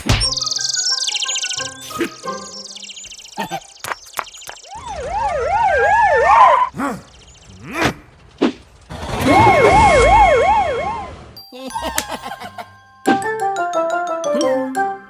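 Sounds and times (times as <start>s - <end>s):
sliding swoops: 4.6s - 11.3s
cartoon siren wailing: 4.7s - 6.7s, 9.2s - 11.1s.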